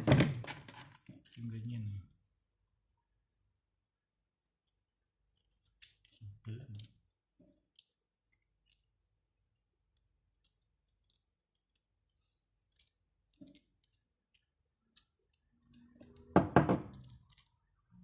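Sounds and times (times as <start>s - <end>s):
clicks of small parts handled: 4.4s - 8.9s, 9.9s - 16.3s, 16.9s - 17.7s.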